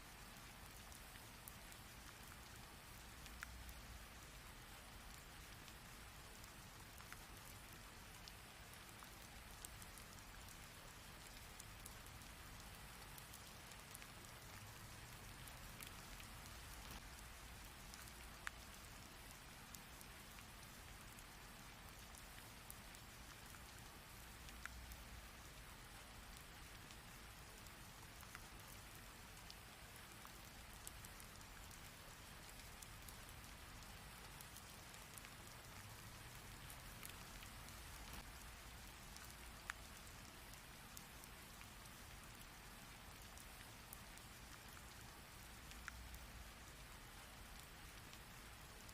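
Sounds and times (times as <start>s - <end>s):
raindrop impacts: 13.4s - 18.6s, 35.1s - 40.4s.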